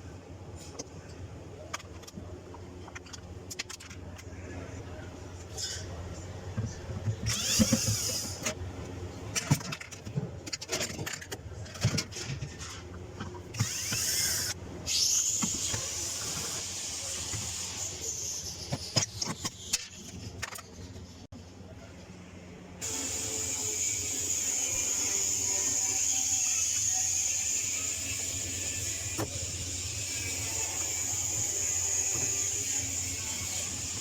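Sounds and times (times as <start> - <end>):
parts clicking and rattling: 0.6 - 4.4, 9.3 - 14.6, 18.4 - 21.2
high-pitched whir: 7.3 - 8.5, 13.6 - 18.5.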